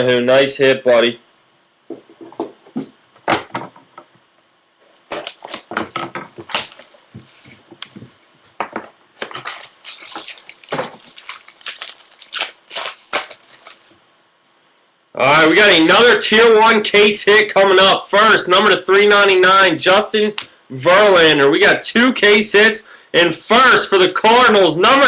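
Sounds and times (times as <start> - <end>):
card pack wrapper tearing: 5.1 - 5.7, 6.5 - 7.0, 9.2 - 13.9
wrapper crinkling: 6.5 - 7.0, 9.2 - 14.0
cards being handled: 9.2 - 13.9.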